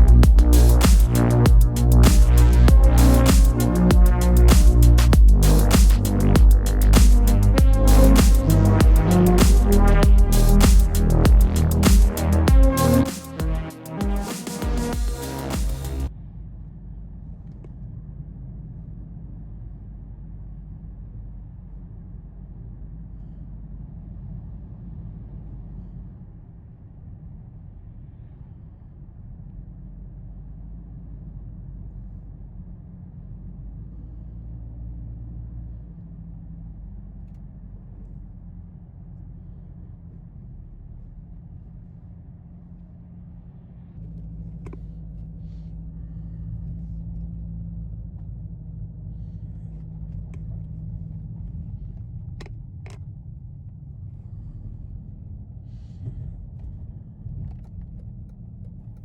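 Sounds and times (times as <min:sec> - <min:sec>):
car engine rumble: 0:00.0 - 0:59.0.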